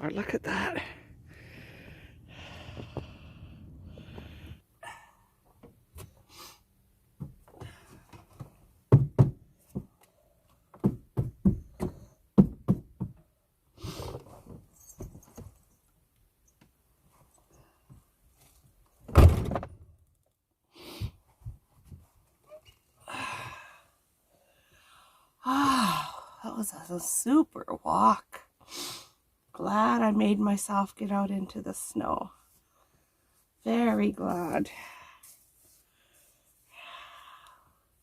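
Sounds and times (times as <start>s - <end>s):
van door thudding: 19.1s - 19.8s.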